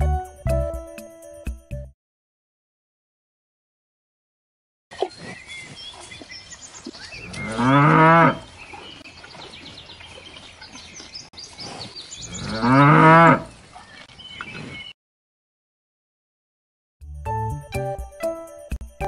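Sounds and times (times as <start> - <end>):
cattle mooing: 7.3 - 8.5, 12.2 - 13.5.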